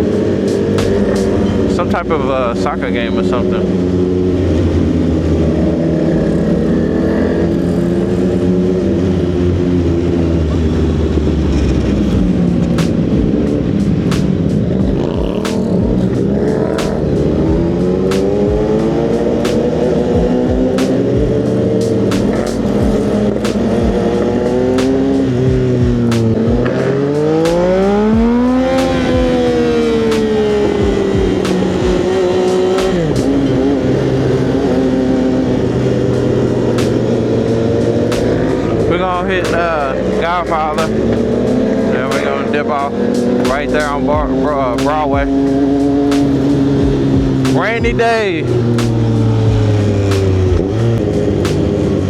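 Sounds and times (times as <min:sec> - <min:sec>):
motorcycle engine running: 0:00.0 - 0:52.0
sharp clicks: 0:00.5 - 0:01.5, 0:19.4 - 0:19.9, 0:20.8 - 0:21.2, 0:21.8 - 0:22.7, 0:26.0 - 0:28.0, 0:36.8 - 0:37.2, 0:38.0 - 0:38.7, 0:46.0 - 0:46.5, 0:48.7 - 0:49.3.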